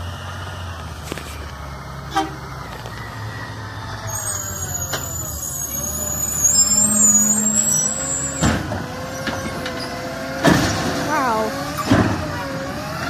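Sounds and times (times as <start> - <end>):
high-pitched squeal: 4.0 - 8.4.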